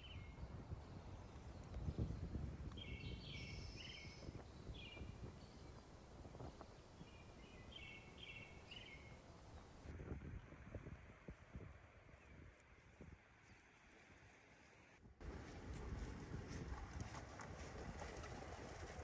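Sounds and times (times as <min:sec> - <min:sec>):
small birds chirping: 0:00.0 - 0:09.9
low outdoor rumble: 0:15.2 - 0:19.0.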